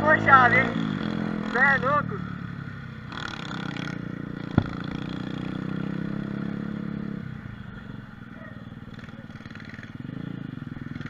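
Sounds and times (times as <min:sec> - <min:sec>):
sharp knock: 0:04.6 - 0:05.5.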